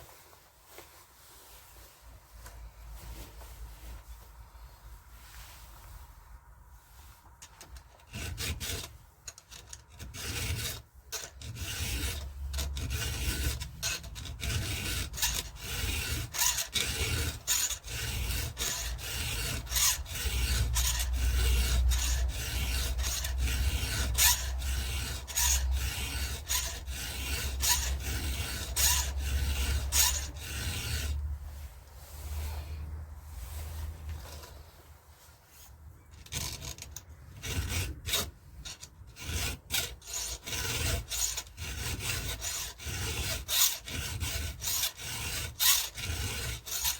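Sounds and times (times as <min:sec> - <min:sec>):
hand file rasping on chain: 0:07.4 - 0:31.3, 0:36.2 - 0:46.9.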